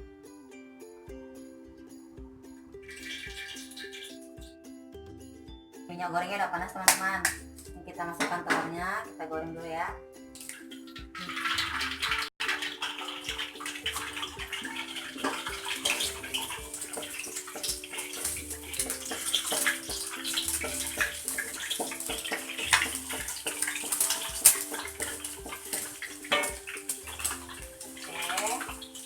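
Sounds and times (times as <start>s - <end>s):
egg sizzling in hot oil: 2.5s - 4.5s, 10.2s - 29.0s.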